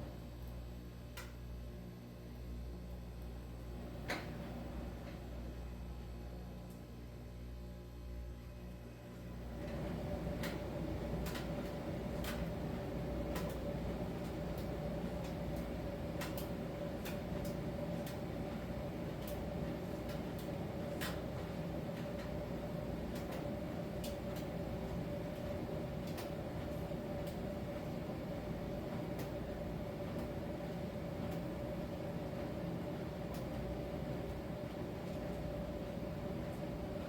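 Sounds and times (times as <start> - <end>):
tumble dryer humming: 9.4 - 37.0.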